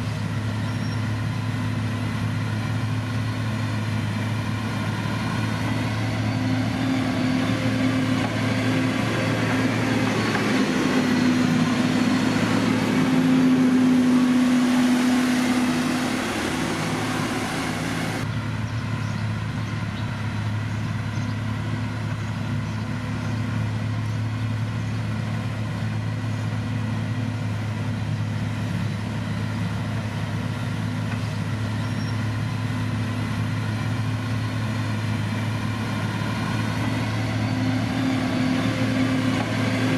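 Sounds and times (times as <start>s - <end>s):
heavy machinery diesel engine running: 0.0s - 39.9s
rushing noise: 4.5s - 18.2s.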